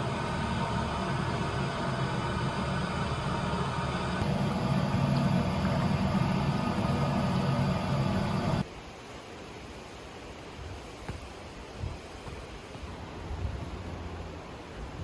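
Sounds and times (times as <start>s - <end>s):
faint hum: 0.0s - 8.6s
vehicle engine rumbling: 0.0s - 8.6s.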